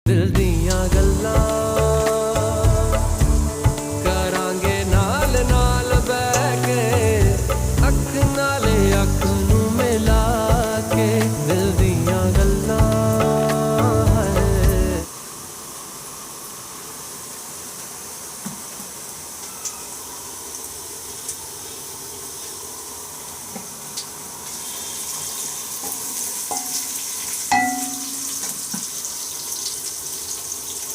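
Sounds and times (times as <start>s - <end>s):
food sizzling in a pan: 0.8s - 30.9s
utensil clinking against pan: 27.5s - 28.5s.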